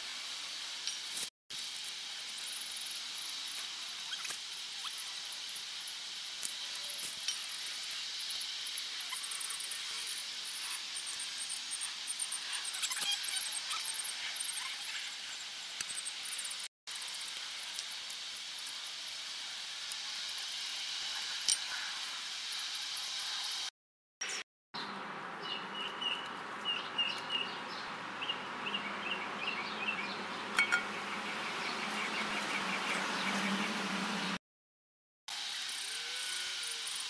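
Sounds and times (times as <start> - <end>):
outdoor background noise: 0.0 - 34.4, 35.3 - 37.0
bird chirping: 2.4 - 16.7, 24.2 - 33.6.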